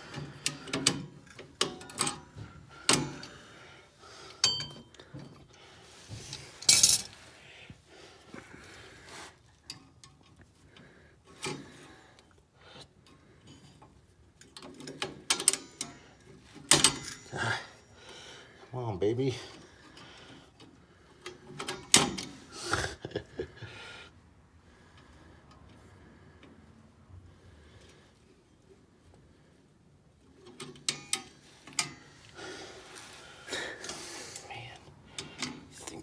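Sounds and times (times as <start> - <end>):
metal tools clinking and scraping: 0.1 - 3.4, 4.4 - 5.4, 6.0 - 7.4, 14.5 - 17.6, 30.4 - 36.0.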